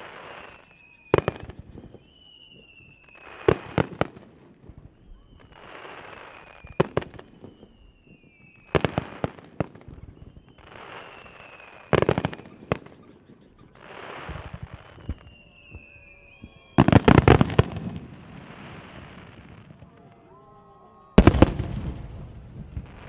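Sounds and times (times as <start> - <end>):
firework bangs and cracks: 0.0 - 13.0, 13.8 - 20.1, 21.2 - 23.0
whistle sliding down in pitch: 0.3 - 3.4, 9.9 - 12.0, 14.2 - 17.6.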